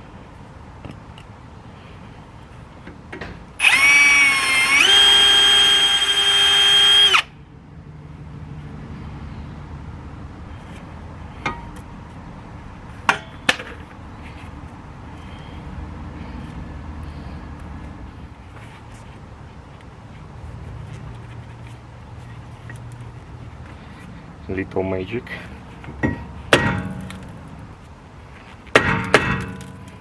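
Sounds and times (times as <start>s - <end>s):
electric drill whining: 3.6s - 7.3s.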